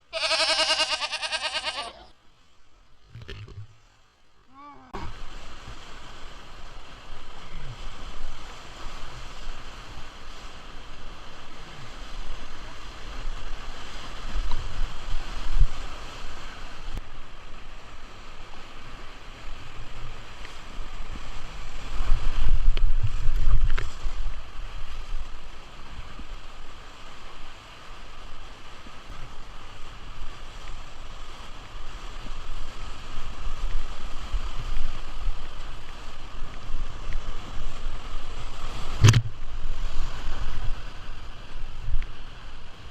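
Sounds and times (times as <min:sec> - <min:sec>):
wind buffeting microphone: 0:19.6 - 0:26.6.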